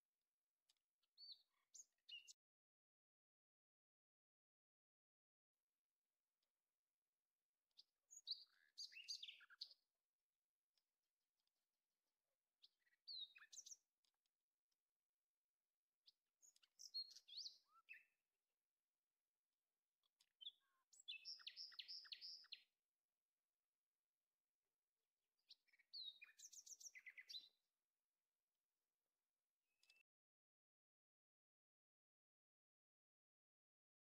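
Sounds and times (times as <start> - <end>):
faint bird chirping: 0.5 - 2.6, 5.4 - 10.0, 12.4 - 15.0, 16.0 - 18.2, 19.6 - 22.8, 25.4 - 27.7, 29.5 - 30.2.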